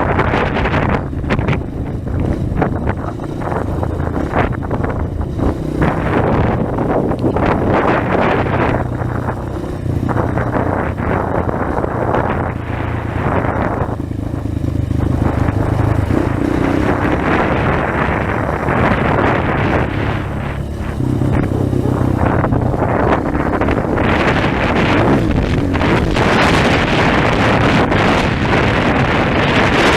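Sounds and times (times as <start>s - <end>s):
motorcycle engine revving: 0.0s - 29.9s
wind buffeting microphone: 0.0s - 29.9s.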